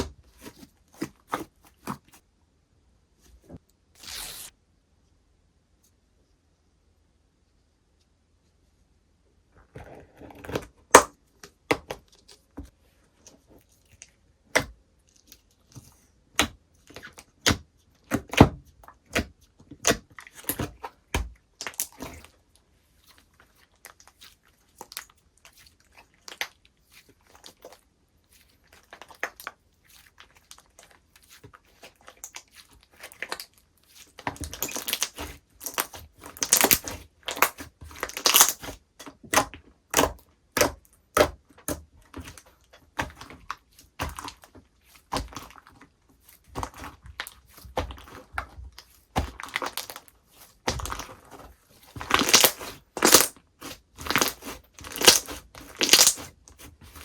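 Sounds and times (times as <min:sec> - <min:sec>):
slime clicking and popping: 0:34.5 - 0:38.7, 0:52.1 - 0:56.3.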